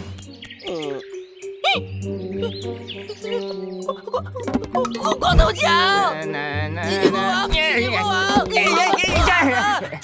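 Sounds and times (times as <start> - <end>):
chirp sound effect: 0.0 - 5.8
cartoon background music: 0.0 - 10.0.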